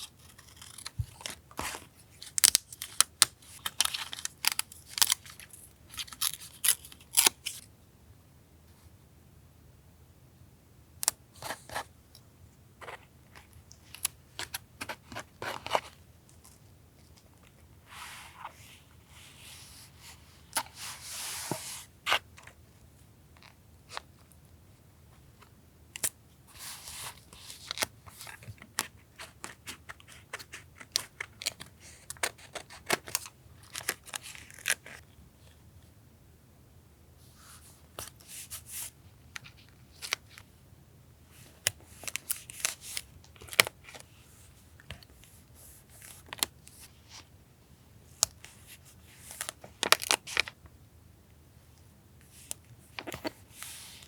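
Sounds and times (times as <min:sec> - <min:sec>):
scissors snipping paper: 0:00.1 - 0:01.7, 0:02.3 - 0:05.4.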